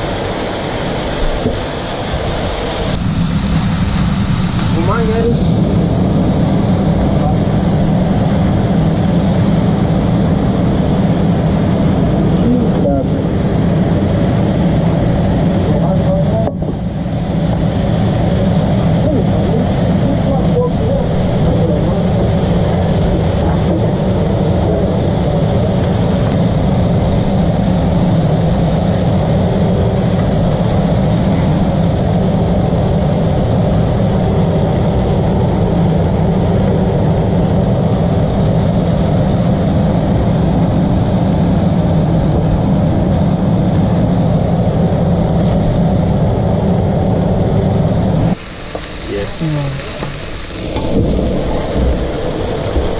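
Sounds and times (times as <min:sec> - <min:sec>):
loud mechanical drone: 0:00.0 - 0:52.9.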